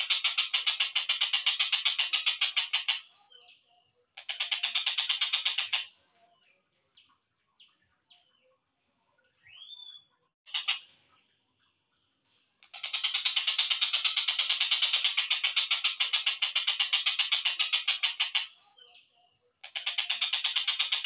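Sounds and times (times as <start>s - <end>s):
slowed kingfisher rattling calls: 0.0s - 3.3s, 4.2s - 5.9s, 10.5s - 10.9s, 12.6s - 18.6s, 19.6s - 21.0s.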